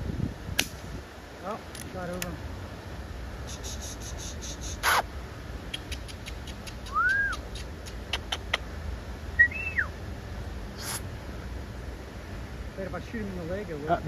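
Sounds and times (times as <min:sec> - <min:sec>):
bird whistling: 0:06.8 - 0:07.5, 0:09.4 - 0:09.9.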